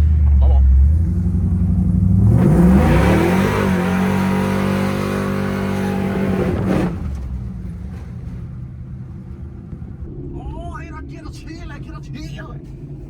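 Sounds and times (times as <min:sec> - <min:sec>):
engine accelerating: 0:00.0 - 0:10.4.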